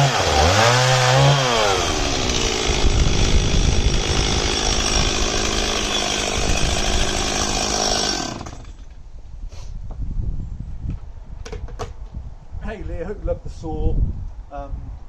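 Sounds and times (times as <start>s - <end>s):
chainsaw running at high revs: 0.0s - 8.9s.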